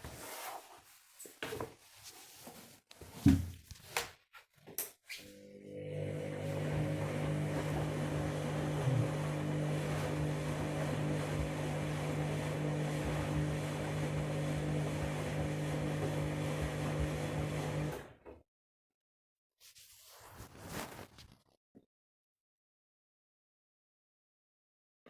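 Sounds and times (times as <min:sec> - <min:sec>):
washing machine running: 0:05.3 - 0:18.2.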